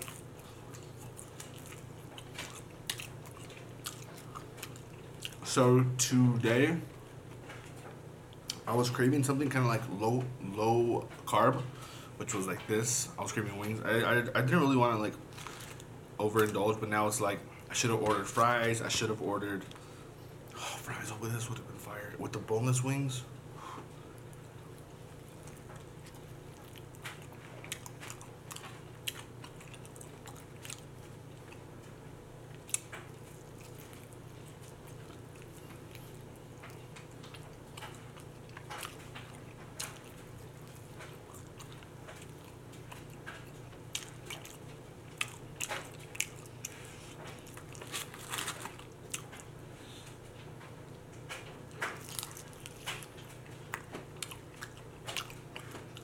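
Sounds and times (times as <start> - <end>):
crunching and chewing: 0.0 - 5.6, 14.6 - 20.6, 23.8 - 56.0
faint low hum: 0.0 - 56.0.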